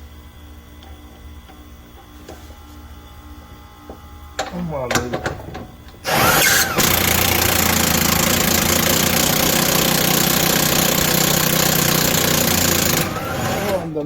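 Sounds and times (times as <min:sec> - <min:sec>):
impact wrench whining: 0:04.4 - 0:14.0.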